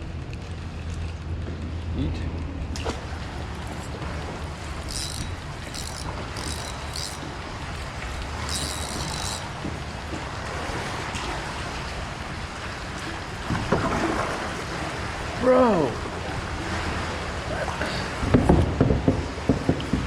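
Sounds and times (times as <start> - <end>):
fishing reel whirring: 3.0 - 10.7.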